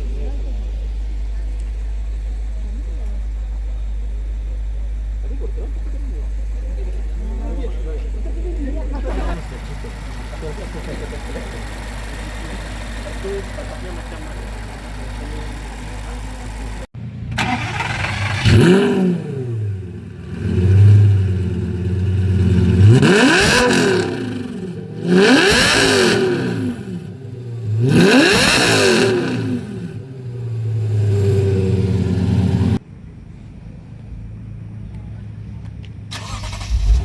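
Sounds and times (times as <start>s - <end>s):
car engine idling: 0.0s - 37.0s
car engine revving: 9.0s - 32.8s, 36.1s - 37.0s.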